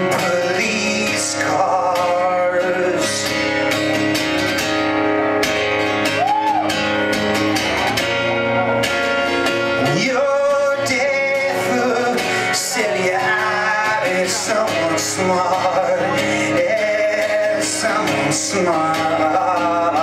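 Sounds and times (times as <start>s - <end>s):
man singing: 0.0s - 4.0s, 9.6s - 20.0s
strummed guitar chords: 0.0s - 20.0s.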